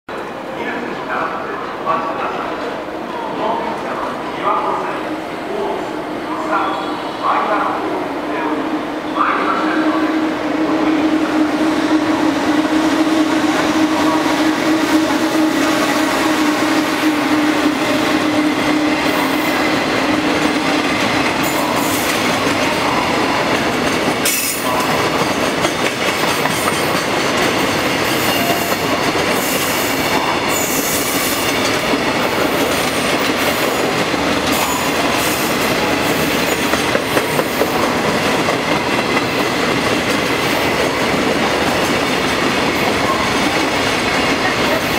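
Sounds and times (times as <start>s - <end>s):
electric locomotive hum: 2.6s - 44.9s
wagon wheels rumbling on rail: 11.1s - 44.9s.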